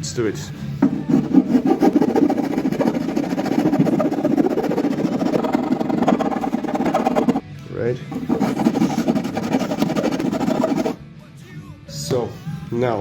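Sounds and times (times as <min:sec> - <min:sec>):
hand file rasping on wood: 0:00.8 - 0:07.4, 0:08.1 - 0:11.0.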